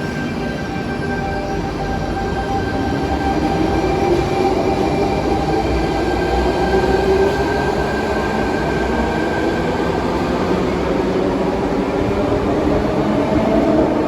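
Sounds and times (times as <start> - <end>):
electric train rumbling: 0.0 - 14.0
high-pitched train whine: 0.0 - 14.0.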